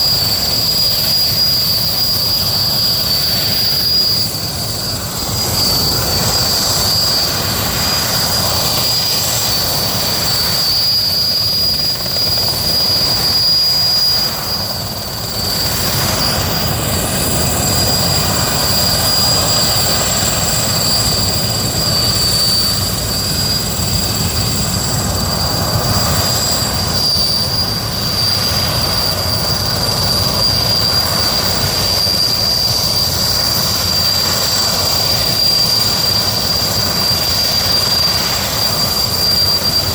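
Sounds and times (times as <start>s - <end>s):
helicopter rotor rumble: 0.0s - 39.9s
helicopter turbine whine: 0.0s - 39.9s.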